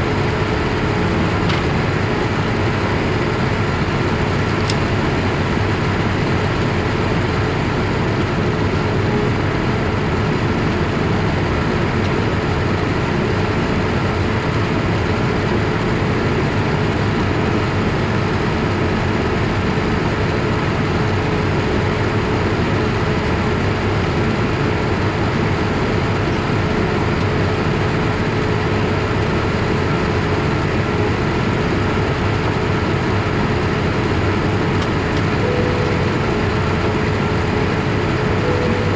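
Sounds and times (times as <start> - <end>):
faint steady hum: 19.6 - 38.9.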